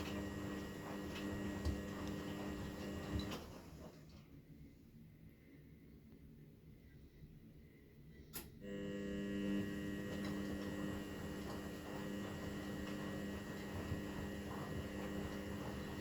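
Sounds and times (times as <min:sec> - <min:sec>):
washing machine drum motor humming: 0:00.0 - 0:04.2, 0:08.6 - 0:16.0.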